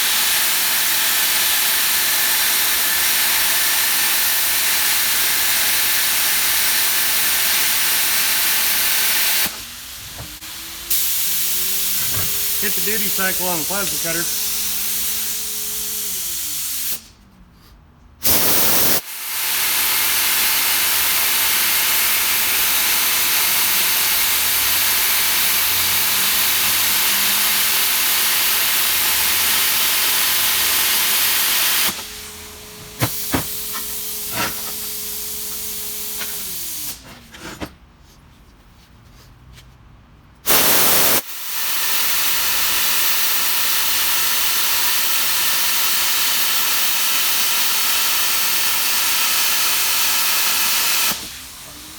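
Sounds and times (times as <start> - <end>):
plasma cutter hissing: 0.0 - 9.6, 10.9 - 15.4, 18.2 - 32.3, 40.5 - 51.3.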